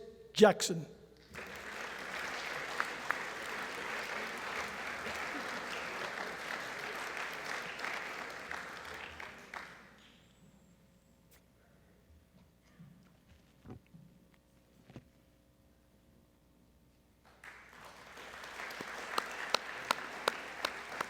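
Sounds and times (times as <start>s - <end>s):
audience applauding: 1.3s - 10.1s, 17.3s - 21.0s.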